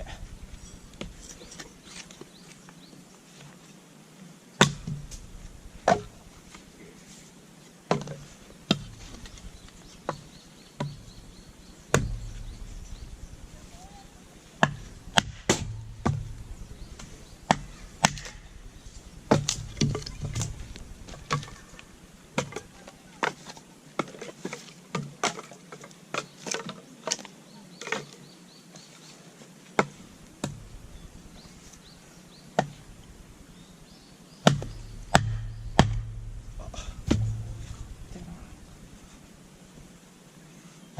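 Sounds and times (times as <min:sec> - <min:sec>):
firewood being chopped: 0:04.6 - 0:06.6, 0:07.9 - 0:11.3, 0:11.9 - 0:13.5, 0:14.6 - 0:24.3, 0:29.8 - 0:31.7, 0:32.6 - 0:33.2, 0:34.4 - 0:38.2.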